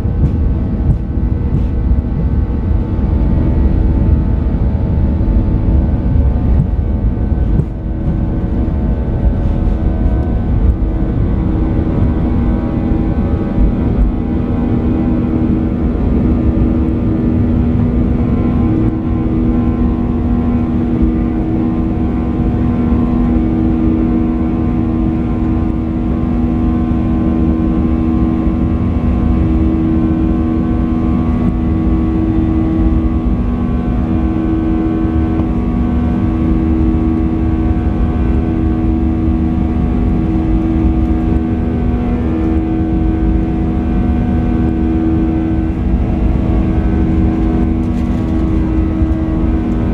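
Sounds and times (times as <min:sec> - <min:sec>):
jet engine cabin rumble: 0:00.0 - 0:49.9.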